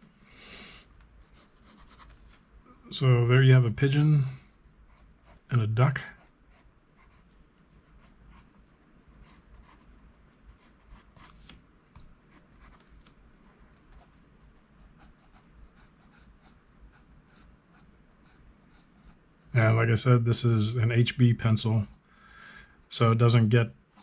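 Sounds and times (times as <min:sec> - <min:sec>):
pencil scratching on paper: 0:04.8 - 0:05.5, 0:06.1 - 0:11.4, 0:12.3 - 0:12.8, 0:13.9 - 0:19.5.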